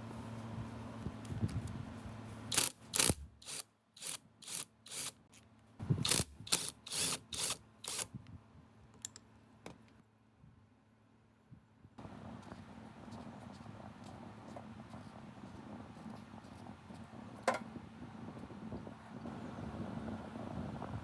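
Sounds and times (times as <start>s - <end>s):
hand tool rasping strokes: 2.4s - 5.4s, 6.0s - 8.1s.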